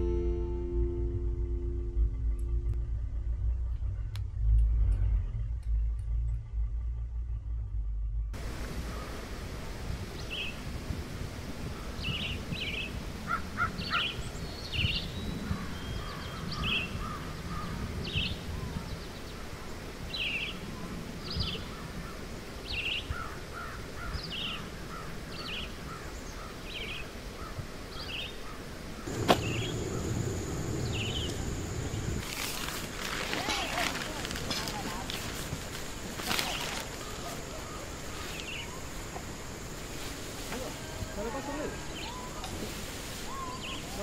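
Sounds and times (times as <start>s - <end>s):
steady high tone: 0.0s - 4.5s
low outdoor rumble: 0.0s - 13.6s, 29.0s - 42.5s.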